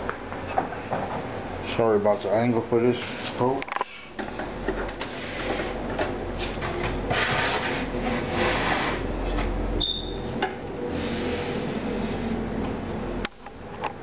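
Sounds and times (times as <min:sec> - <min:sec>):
high squeak: 0:09.8 - 0:10.3.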